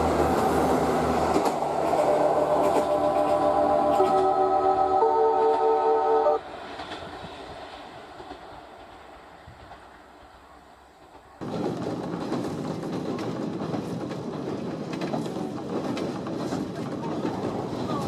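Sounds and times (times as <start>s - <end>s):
running train rumble: 0.0s - 18.0s
train horn chord: 1.8s - 6.4s.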